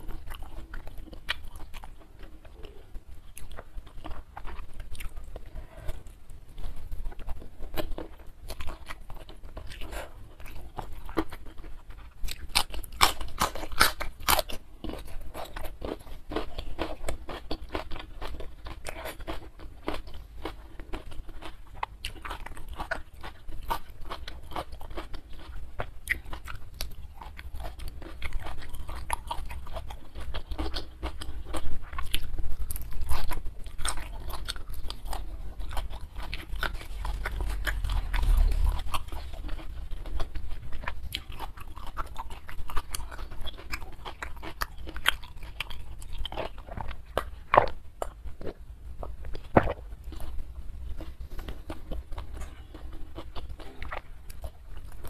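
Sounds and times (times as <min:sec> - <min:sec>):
chewing and crunching food: 0:00.0 - 0:55.0.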